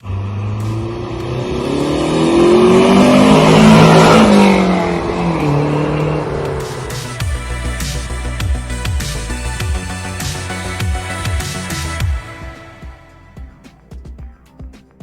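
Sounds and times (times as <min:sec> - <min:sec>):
car engine accelerating past: 0:00.0 - 0:08.4.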